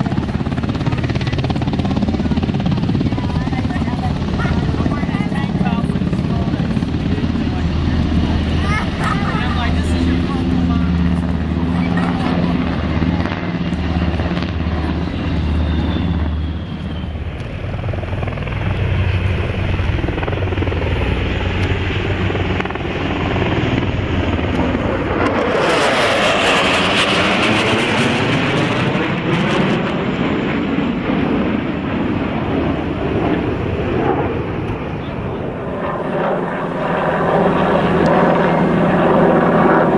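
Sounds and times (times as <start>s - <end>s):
helicopter rotor beat: 0.0s - 39.9s.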